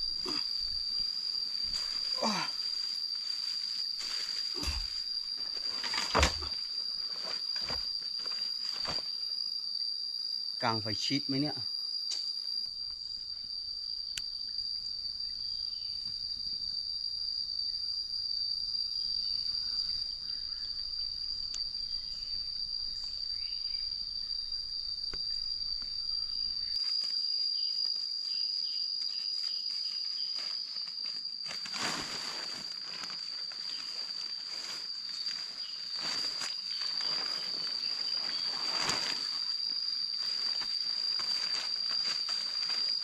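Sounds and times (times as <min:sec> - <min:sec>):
insects chirring: 0:00.0 - 0:43.0.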